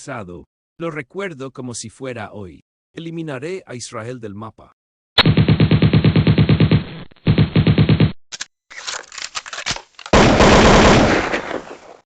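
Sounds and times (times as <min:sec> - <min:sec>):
machine-gun shots: 0:05.2 - 0:08.1, 0:10.1 - 0:11.8.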